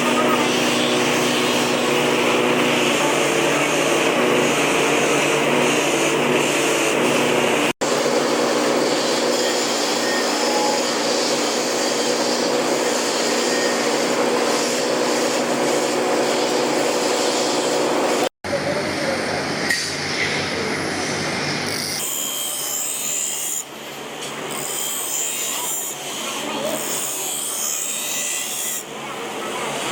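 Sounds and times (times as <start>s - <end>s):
machine humming and hissing: 0.0s - 21.8s.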